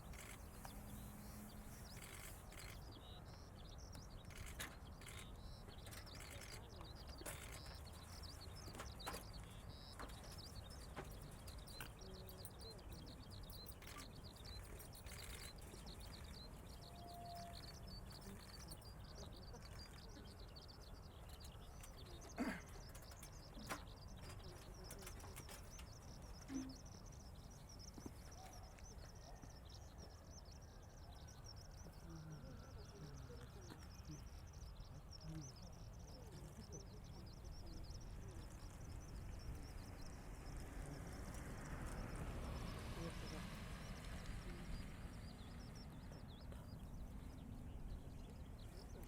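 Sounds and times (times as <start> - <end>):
rapid high-pitched chirping: 0.0 - 0.8, 1.7 - 30.5.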